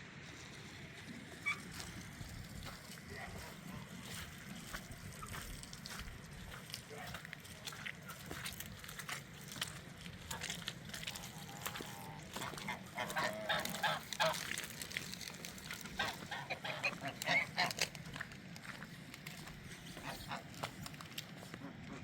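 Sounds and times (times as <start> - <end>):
farm fowl harsh calls: 10.3 - 18.8, 19.9 - 22.0.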